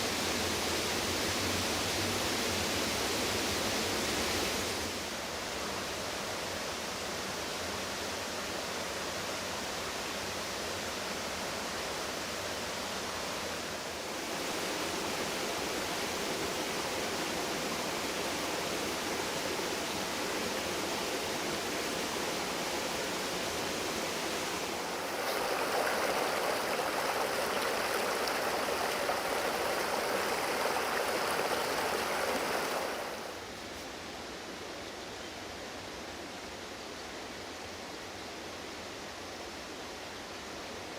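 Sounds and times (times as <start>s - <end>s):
floodwater rushing: 14.1s - 33.4s.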